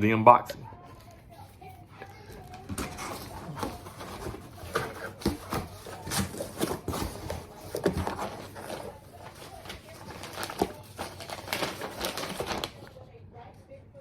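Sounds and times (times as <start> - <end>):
cardboard box handled: 2.6 - 12.8.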